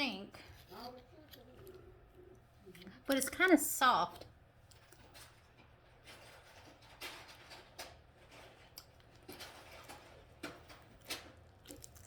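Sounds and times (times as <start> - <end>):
person chewing: 11.0 - 12.0.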